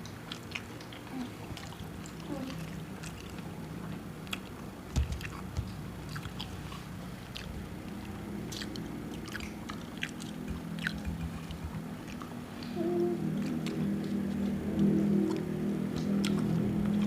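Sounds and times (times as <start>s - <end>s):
low steady hum: 0.0s - 17.0s
people chewing crunchy food: 0.0s - 17.0s
wet mouth clicks: 7.3s - 12.4s, 13.4s - 17.0s.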